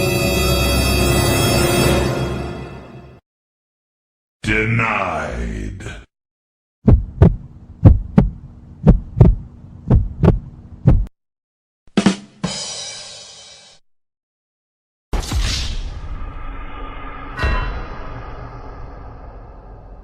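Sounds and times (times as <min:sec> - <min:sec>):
heartbeat thumps: 0:06.8 - 0:11.1.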